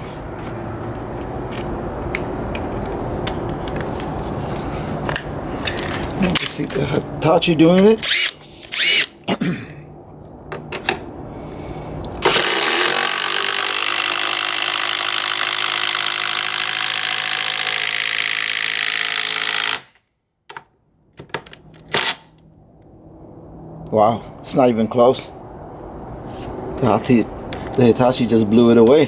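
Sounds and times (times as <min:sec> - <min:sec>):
impact driver hammering screw: 0:12.2 - 0:20.0.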